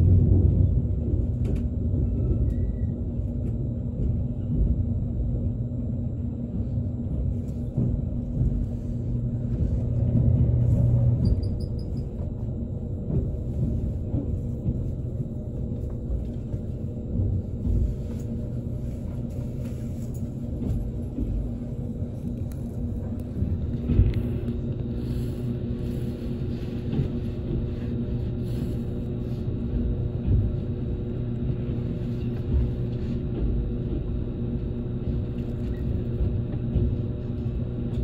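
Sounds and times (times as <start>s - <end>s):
train wheels rumbling on track: 0.0s - 38.0s.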